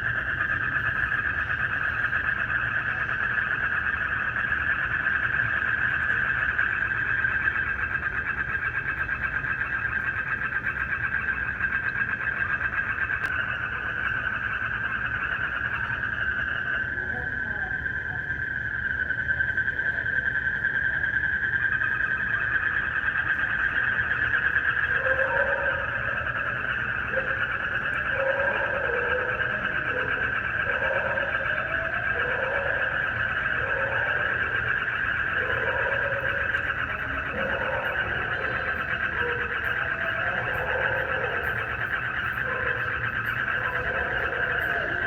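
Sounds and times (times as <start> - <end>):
frogs calling: 0.0 - 45.0
insects trilling: 0.0 - 45.0.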